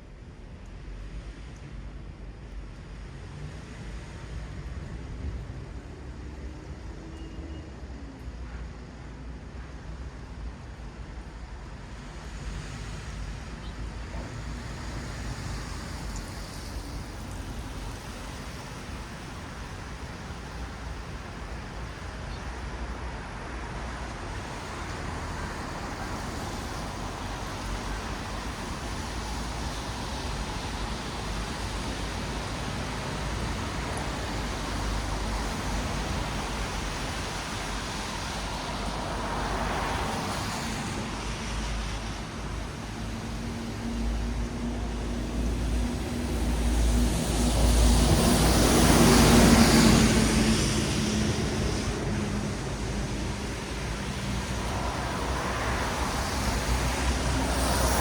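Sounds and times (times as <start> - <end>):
tyre noise on wet road: 11.9 - 58.0
vehicle engine hum passing close: 24.2 - 58.0
vehicle passing: 43.8 - 58.0.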